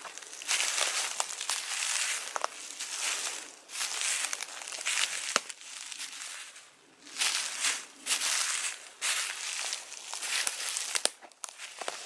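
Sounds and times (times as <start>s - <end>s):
footsteps crunching dry leaves: 0.0s - 12.0s.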